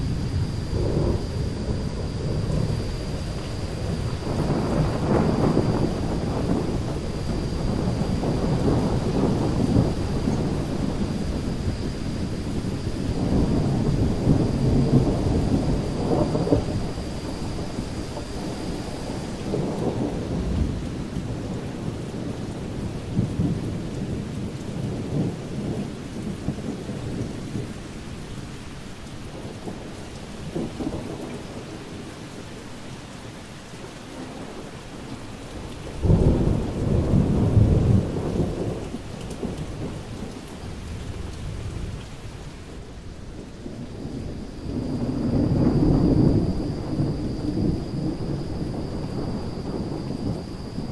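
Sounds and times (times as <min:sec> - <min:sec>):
loud thunder clap: 0:00.0 - 0:18.7, 0:36.0 - 0:40.1, 0:43.7 - 0:50.9
rolling thunder: 0:00.0 - 0:28.4, 0:34.2 - 0:50.9
steady rain: 0:00.0 - 0:50.9.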